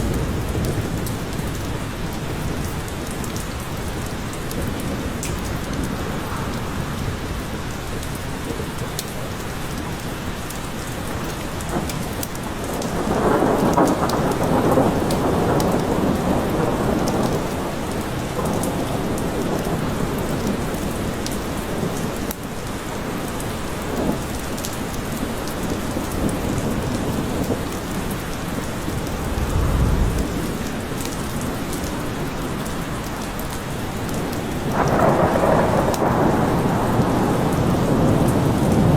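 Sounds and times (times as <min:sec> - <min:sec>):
steady rain in a forest: 0:00.0 - 0:38.9
thunder rumbling: 0:28.8 - 0:31.4.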